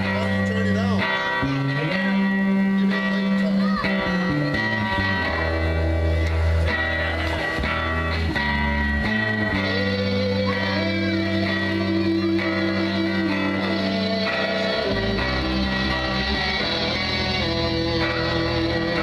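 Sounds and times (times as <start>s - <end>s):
bass guitar: 0.0s - 19.0s
electric guitars: 0.0s - 19.0s.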